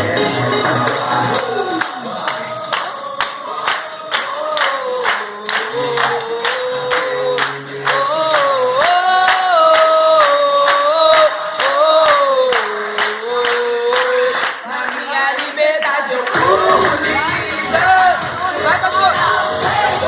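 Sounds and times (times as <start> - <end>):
gospel choir singing: 0.0 - 7.2, 16.3 - 20.0.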